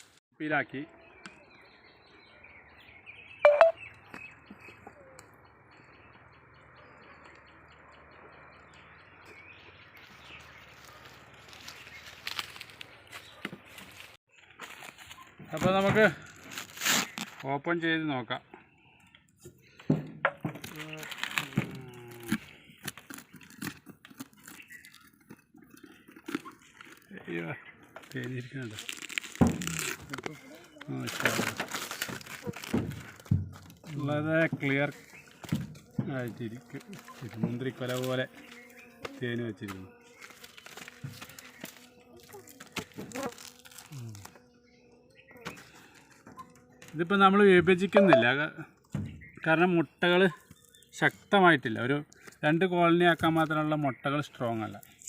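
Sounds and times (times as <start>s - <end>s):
birds chirping: 0.0s - 55.0s
crunching and scraping clicks: 20.6s - 44.4s, 50.4s - 51.2s.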